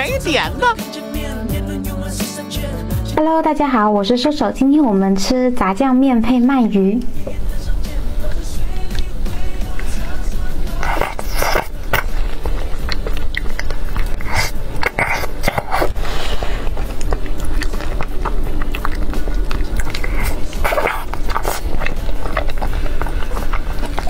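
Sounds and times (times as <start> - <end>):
background music with bass: 0.0 - 3.9, 7.0 - 24.0
wet chewing and mouth clicks: 8.3 - 24.0.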